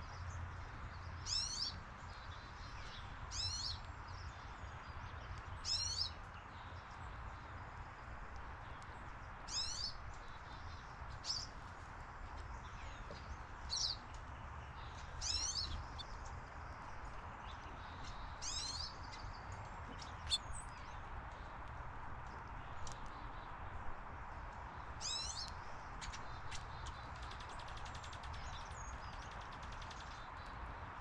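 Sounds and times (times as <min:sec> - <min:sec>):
bird calling: 0:20.3 - 0:20.5.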